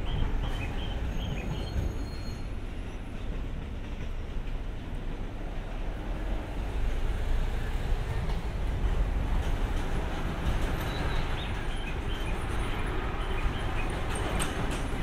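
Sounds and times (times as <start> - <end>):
train rumbling on track: 0.0 - 15.0
faint wheel squeals: 1.1 - 3.0.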